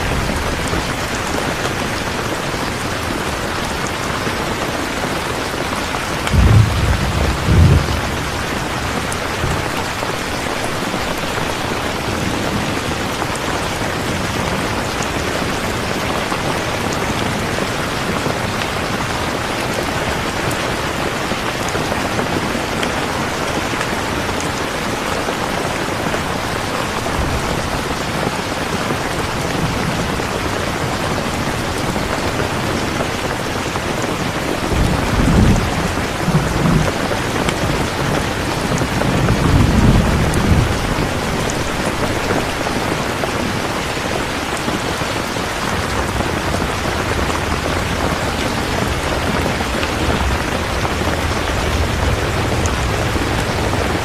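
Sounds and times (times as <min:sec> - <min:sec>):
heavy rainfall: 0:00.0 - 0:54.0
low thunder rumbles: 0:06.0 - 0:13.1, 0:34.7 - 0:42.8, 0:44.8 - 0:54.0.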